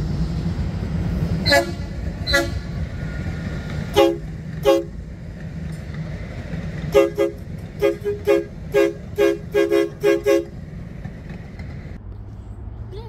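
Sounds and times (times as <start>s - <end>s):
train horn short toots: 1.4s - 2.8s, 3.9s - 5.0s, 6.9s - 10.6s.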